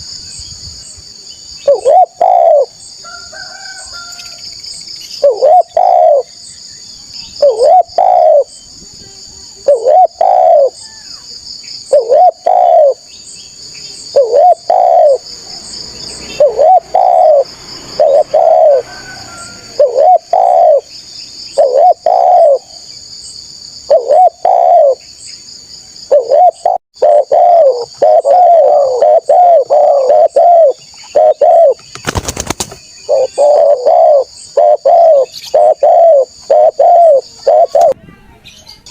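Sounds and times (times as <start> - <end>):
dove cooing: 1.6 - 4.1, 5.2 - 6.3, 7.4 - 8.6, 9.6 - 10.8, 11.9 - 13.1, 14.0 - 20.9, 21.5 - 22.9, 23.8 - 25.0, 26.1 - 31.8, 33.0 - 38.0.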